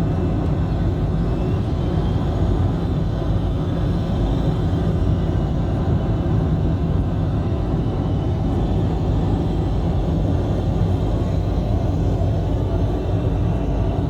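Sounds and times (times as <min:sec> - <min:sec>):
airplane cabin engine drone: 0:00.0 - 0:14.0.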